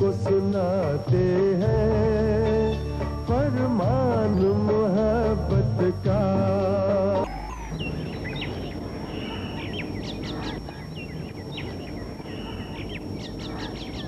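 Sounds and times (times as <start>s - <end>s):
low outdoor background hiss: 0.0s - 14.0s
birds chirping and calling: 6.6s - 14.0s.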